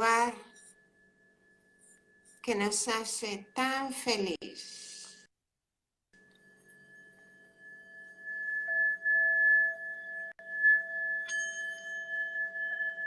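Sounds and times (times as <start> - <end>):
higher bowl ring: 0.0 - 3.0, 6.2 - 13.0
singing bowl ringing: 0.0 - 3.9, 6.2 - 13.0.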